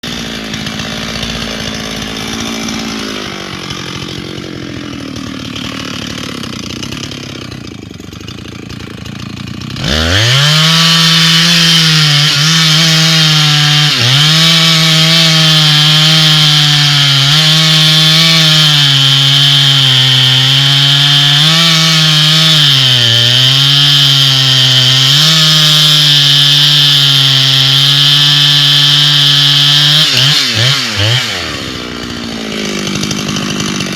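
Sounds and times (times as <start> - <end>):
chainsaw cutting at full throttle: 0.0 - 33.9.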